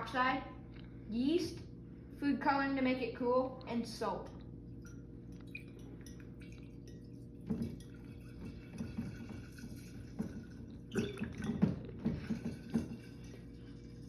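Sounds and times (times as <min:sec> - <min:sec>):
liquid glugging from bottle: 0:04.7 - 0:14.0.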